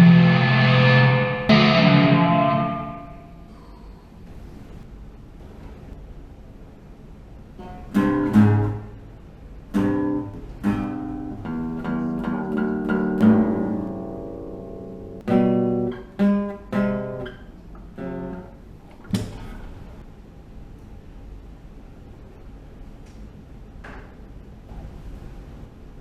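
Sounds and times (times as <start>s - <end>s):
acoustic guitar strummed chords: 0.0s - 3.5s, 7.6s - 9.0s, 9.8s - 17.4s.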